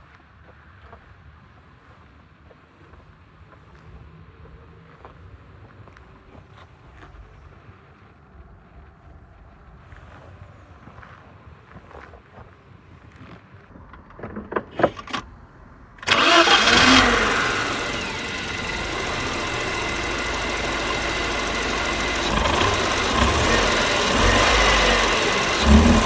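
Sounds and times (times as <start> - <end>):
car engine starting and idling: 13.9 - 26.0
clicks: 16.0 - 26.0.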